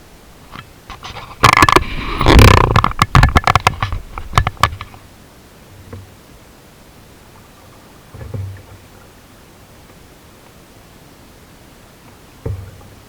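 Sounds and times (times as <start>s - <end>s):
knocks clicks and scraping: 0.5s - 5.0s.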